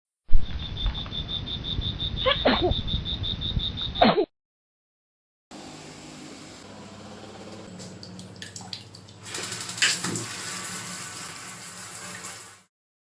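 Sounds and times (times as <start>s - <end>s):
insect chirping in fast pulses: 0.4s - 3.9s
frog calls: 1.2s - 4.0s.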